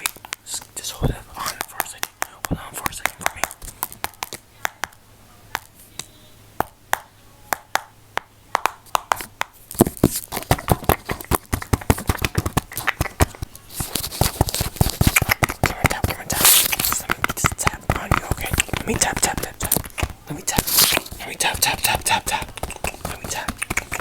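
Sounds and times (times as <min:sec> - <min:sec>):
close clicks and taps: 0:10.6 - 0:24.0
breathy hiss: 0:15.0 - 0:22.6.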